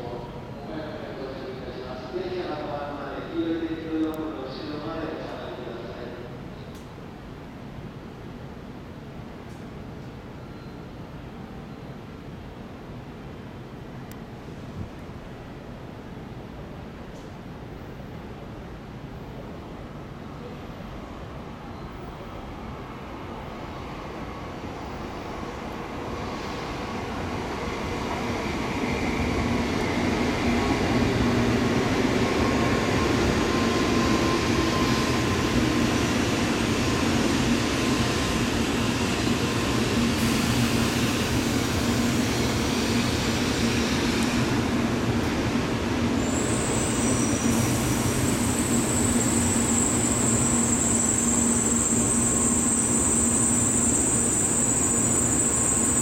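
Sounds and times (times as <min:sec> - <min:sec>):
high steady squeal: 0:46.2 - 0:56.0.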